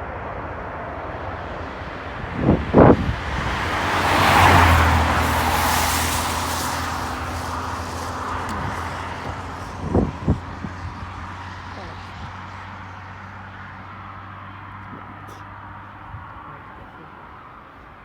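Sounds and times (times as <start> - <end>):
wind thumping on microphone: 2.0 - 12.5.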